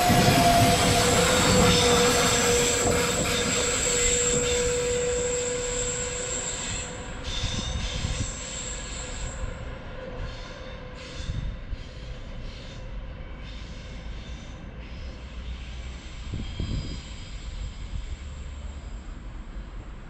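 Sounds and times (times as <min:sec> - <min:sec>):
high-pitched whine: 0:00.0 - 0:09.6
electric train rolling rumble: 0:00.0 - 0:20.0.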